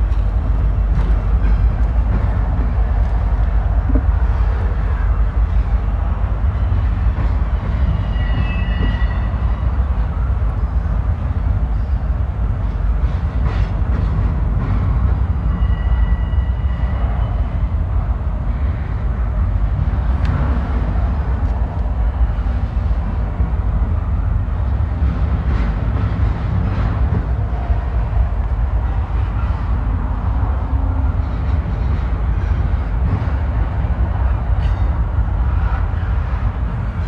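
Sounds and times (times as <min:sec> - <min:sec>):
freight train rumbling past: 0:00.0 - 0:37.0.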